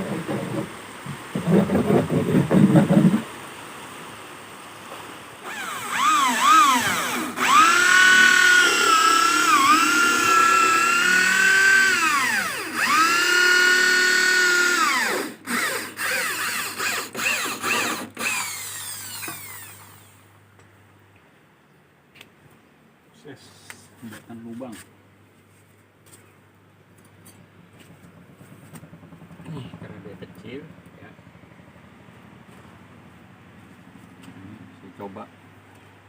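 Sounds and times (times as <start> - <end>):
electric drill whining: 5.4 - 20.2.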